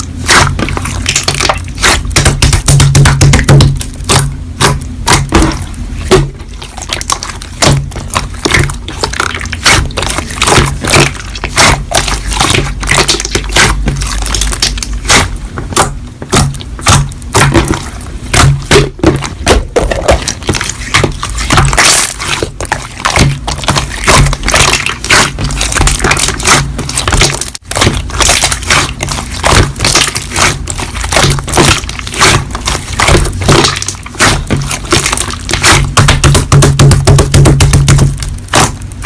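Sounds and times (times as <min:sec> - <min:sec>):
slime squeezed by hand: 0:20.0 - 0:36.5.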